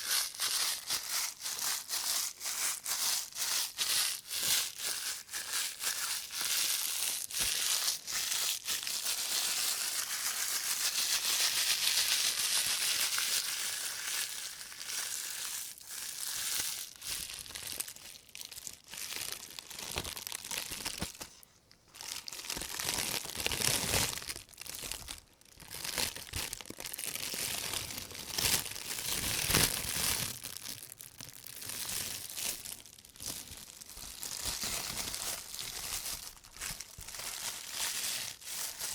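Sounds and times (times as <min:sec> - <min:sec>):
plastic bag crinkling: 0:00.0 - 0:38.9.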